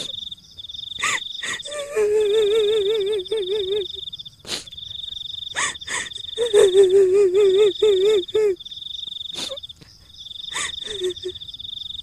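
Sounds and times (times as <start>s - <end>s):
insect trill: 0.0s - 12.0s
female ghostly wail: 1.0s - 4.0s, 5.6s - 8.6s, 10.5s - 11.4s.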